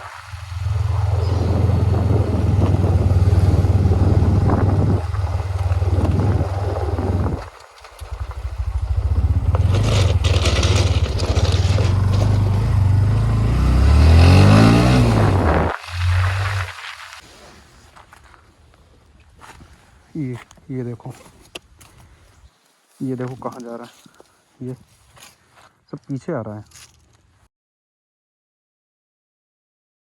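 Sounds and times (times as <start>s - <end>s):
motorcycle engine revving: 0.0s - 16.8s.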